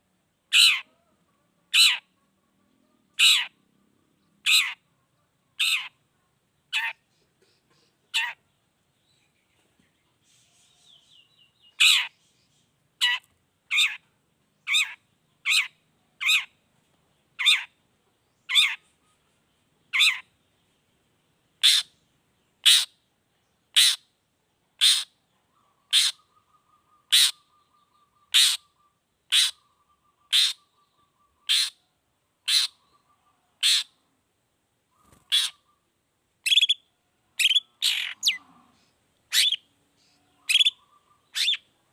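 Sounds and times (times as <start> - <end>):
faint bird chirps: 0.0 - 41.9
bird giving sharp calls: 0.5 - 1.0, 3.1 - 3.6, 4.4 - 4.8, 5.6 - 6.0, 13.0 - 14.0, 19.9 - 20.3, 21.6 - 21.9, 22.6 - 22.9, 24.8 - 31.8, 32.4 - 34.0, 34.9 - 36.8, 37.4 - 38.4, 39.3 - 39.7, 40.3 - 41.7.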